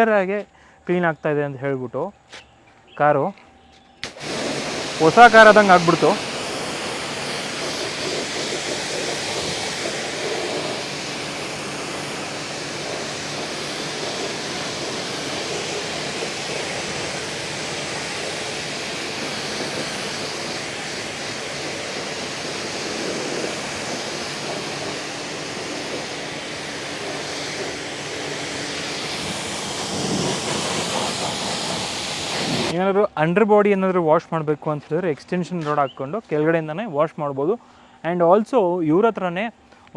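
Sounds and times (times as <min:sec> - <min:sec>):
pressure washer spraying water: 0:04.0 - 0:32.8.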